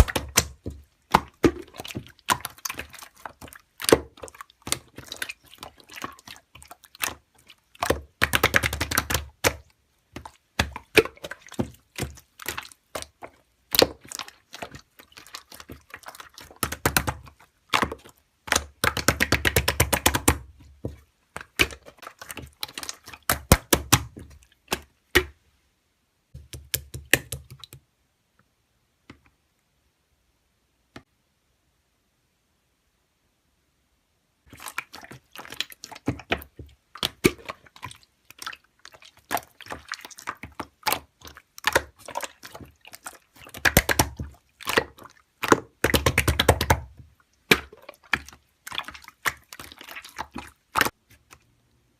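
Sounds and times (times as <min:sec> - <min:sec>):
slime clicking and crackling: 0:00.0 - 0:20.5, 0:21.4 - 0:25.4, 0:34.5 - 0:51.4.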